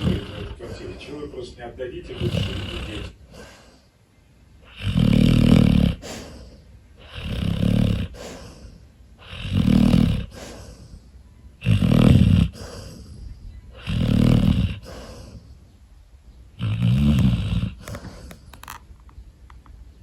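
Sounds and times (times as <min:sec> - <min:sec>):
dog snoring: 0:00.0 - 0:01.2, 0:02.0 - 0:03.8, 0:04.6 - 0:15.5, 0:16.5 - 0:18.4.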